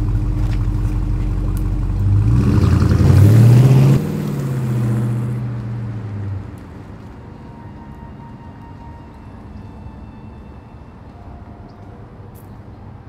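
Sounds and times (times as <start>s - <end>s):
car engine revving: 0.0s - 9.5s.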